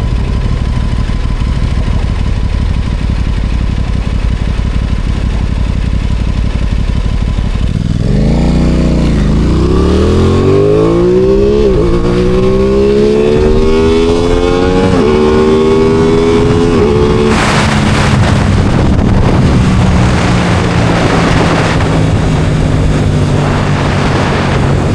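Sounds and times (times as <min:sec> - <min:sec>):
motorcycle engine accelerating: 0:00.0 - 0:24.9.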